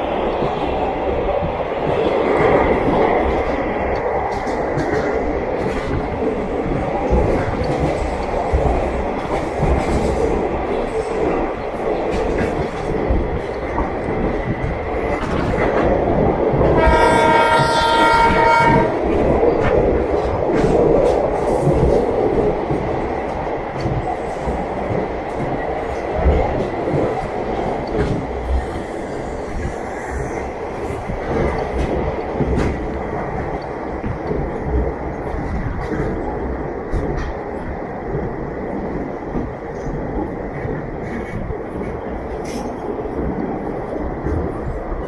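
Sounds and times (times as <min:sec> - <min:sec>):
train wheels rumbling and clacking: 0:00.0 - 0:45.0
train horn: 0:16.8 - 0:19.0.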